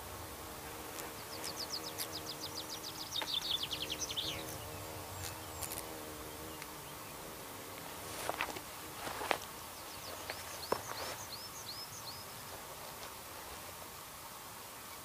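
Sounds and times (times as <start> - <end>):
faint steady hum: 0.0 - 15.0
songbird trill: 1.2 - 7.2, 9.7 - 12.4.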